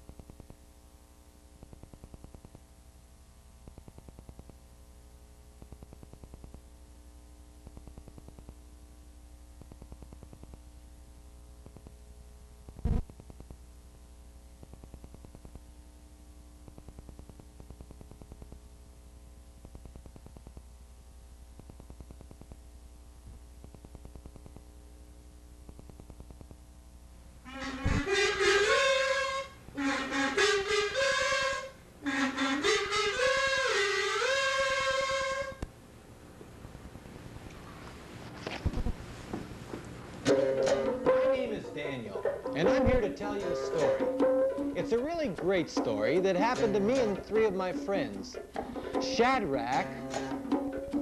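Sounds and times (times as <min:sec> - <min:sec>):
faint crackling ticks: 0:00.0 - 0:00.7, 0:01.6 - 0:02.7, 0:03.6 - 0:04.7, 0:05.6 - 0:06.7, 0:07.6 - 0:08.7, 0:09.5 - 0:10.7, 0:11.6 - 0:12.0, 0:12.6 - 0:13.6, 0:14.6 - 0:15.7, 0:16.6 - 0:18.8, 0:19.5 - 0:20.8, 0:21.5 - 0:24.8, 0:25.6 - 0:26.6
electrical hum and buzz: 0:00.0 - 0:51.0.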